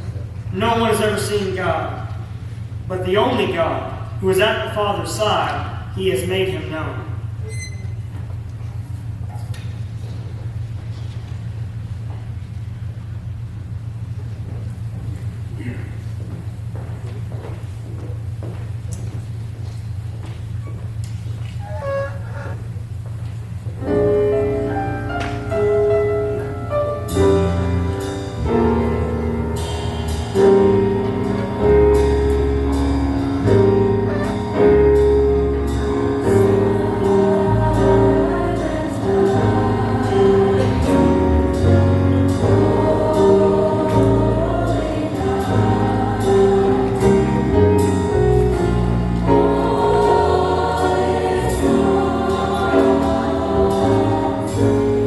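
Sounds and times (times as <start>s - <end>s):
steady bass line: 21.6s - 55.0s
band accompaniment: 23.8s - 55.0s
choir singing swing song: 23.8s - 55.0s.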